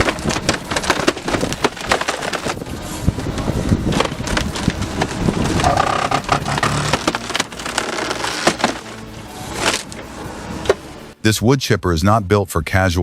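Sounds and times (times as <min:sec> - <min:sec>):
wood cracking and splintering: 0:00.0 - 0:10.0
engine hum: 0:00.0 - 0:11.2.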